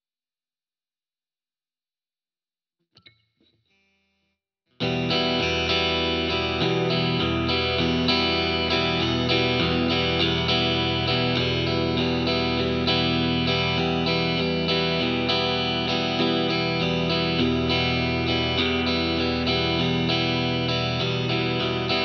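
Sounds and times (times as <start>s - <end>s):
electric guitar strumming chords: 4.8s - 22.0s.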